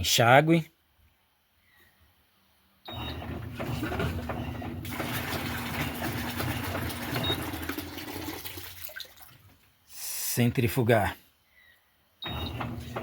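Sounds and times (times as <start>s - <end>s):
washing machine humming: 2.9s - 9.6s, 12.2s - 13.0s.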